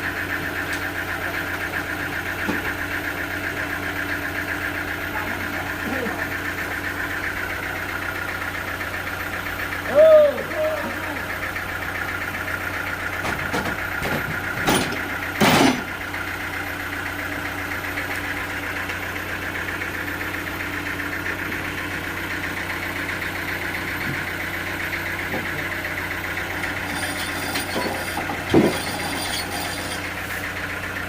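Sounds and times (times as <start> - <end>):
sawmill machinery running: 0.0 - 31.0.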